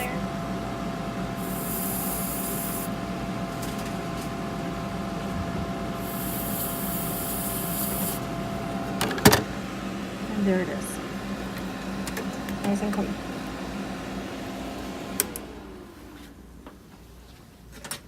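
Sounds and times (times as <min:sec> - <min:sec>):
machine hum: 0:00.0 - 0:17.2
hissing air spray: 0:01.4 - 0:03.0, 0:06.0 - 0:08.3.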